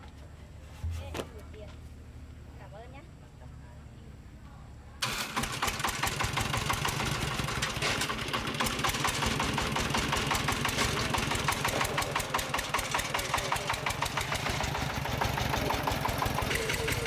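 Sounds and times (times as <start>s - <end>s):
small engine idling: 5.0s - 17.0s.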